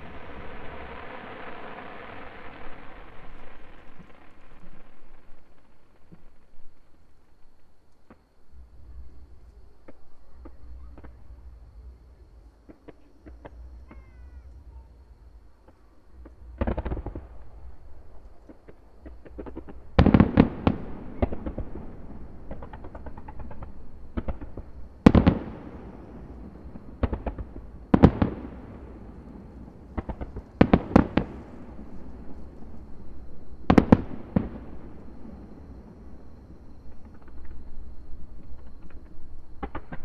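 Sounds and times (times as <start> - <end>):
firework shells bursting: 15.6 - 25.6, 38.4 - 40.0.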